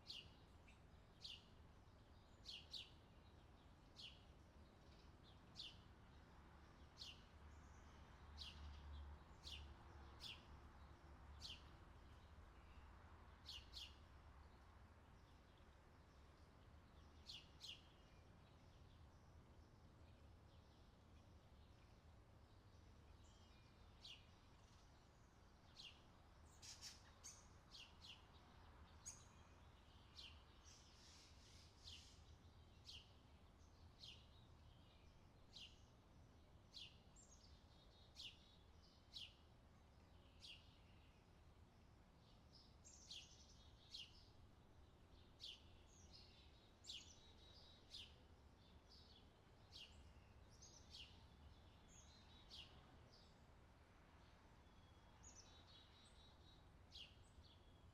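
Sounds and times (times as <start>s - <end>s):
songbirds chirping: 0.0s - 57.9s.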